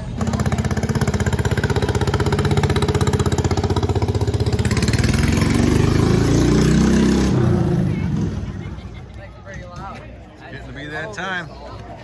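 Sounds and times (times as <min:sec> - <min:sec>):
old tractor engine running: 0:00.0 - 0:06.2.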